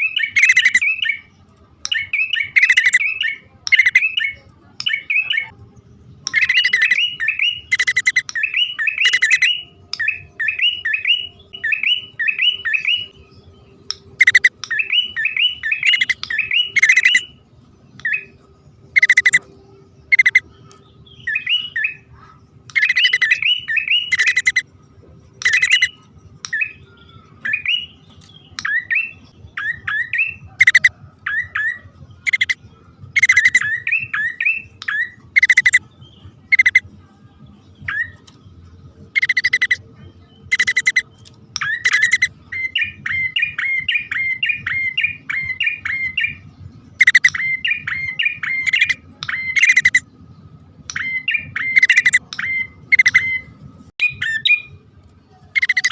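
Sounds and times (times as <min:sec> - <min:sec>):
bird clicking notes: 0:00.0 - 0:01.0, 0:01.8 - 0:04.2, 0:04.8 - 0:05.5, 0:06.2 - 0:13.2, 0:13.8 - 0:17.3, 0:17.9 - 0:18.3, 0:19.0 - 0:19.5, 0:20.1 - 0:21.8, 0:22.6 - 0:24.6, 0:25.4 - 0:26.8, 0:32.3 - 0:32.6, 0:36.5 - 0:36.8, 0:39.1 - 0:39.8, 0:40.5 - 0:42.3, 0:47.0 - 0:50.0
bird rising chirps: 0:00.0 - 0:01.3, 0:06.3 - 0:17.4, 0:18.0 - 0:24.6, 0:25.4 - 0:36.8, 0:39.0 - 0:50.2, 0:50.9 - 0:54.8.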